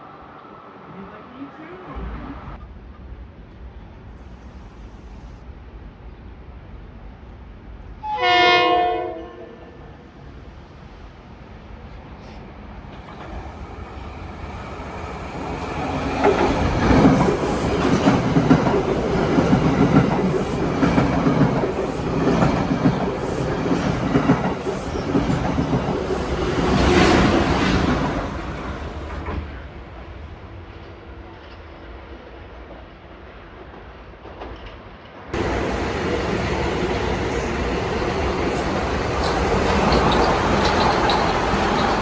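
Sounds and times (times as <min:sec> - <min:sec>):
train passing at speed: 0:00.0 - 0:42.0
wheels clacking over rail joints: 0:35.4 - 0:42.0.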